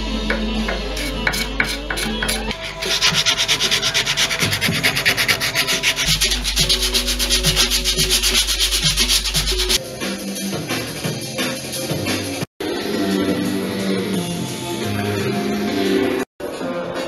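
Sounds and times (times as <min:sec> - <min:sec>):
hand rubbing wood: 0:00.7 - 0:09.8.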